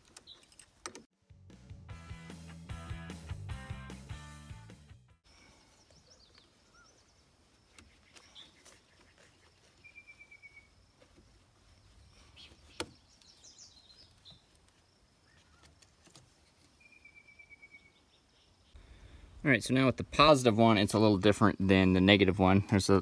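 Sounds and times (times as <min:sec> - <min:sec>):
faint birds chirping: 0:00.0 - 0:01.1, 0:05.2 - 0:23.0
rapid bird trill: 0:05.3 - 0:10.8, 0:16.8 - 0:18.8.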